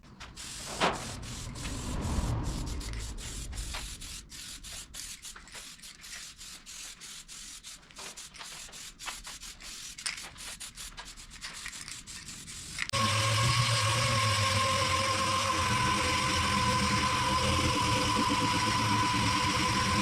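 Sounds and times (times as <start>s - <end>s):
sandpaper rubbing on panel: 0.3s - 13.0s
steady machine hum: 12.9s - 20.0s.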